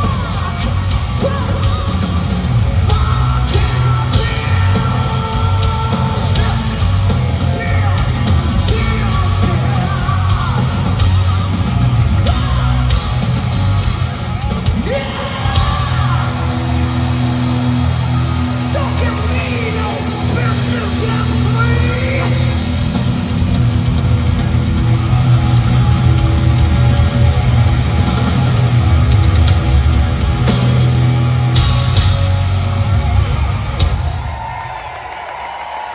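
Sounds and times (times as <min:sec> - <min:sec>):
distorted guitars: 0:00.0 - 0:34.6
hard rock band playing live: 0:00.0 - 0:35.1
drums: 0:00.0 - 0:35.9
person shouting lead vocal: 0:02.9 - 0:06.8, 0:14.8 - 0:17.4, 0:18.5 - 0:22.7.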